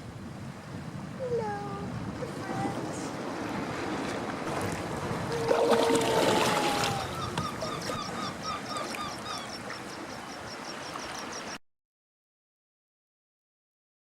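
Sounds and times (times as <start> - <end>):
water washing: 1.2 - 9.1
bird calling: 5.0 - 11.6.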